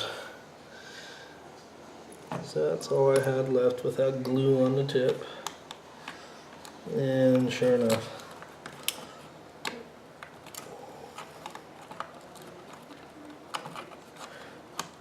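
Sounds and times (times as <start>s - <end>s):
screwdriver clicking on plastic: 11.2s - 15.0s.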